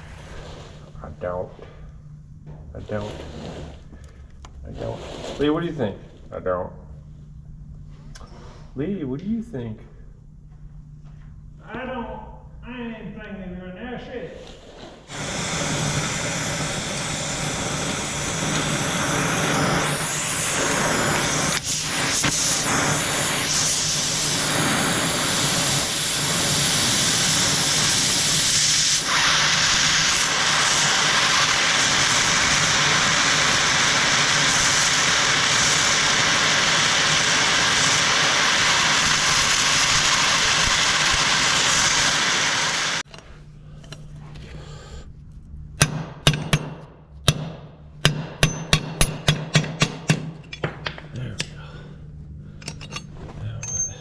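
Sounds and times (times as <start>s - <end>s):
gas torch flame hissing: 0.0s - 1.4s, 2.8s - 6.1s, 14.3s - 43.1s.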